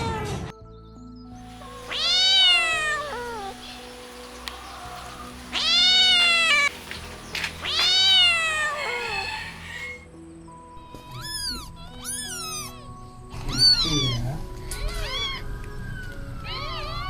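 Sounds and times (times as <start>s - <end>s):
soft background music: 0.5s - 17.0s
kitten meowing: 1.5s - 6.7s, 7.4s - 10.0s.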